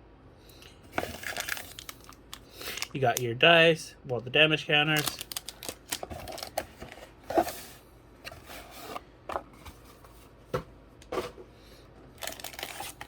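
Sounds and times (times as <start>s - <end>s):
cards and paper rustling: 4.9s - 7.7s, 12.2s - 13.0s.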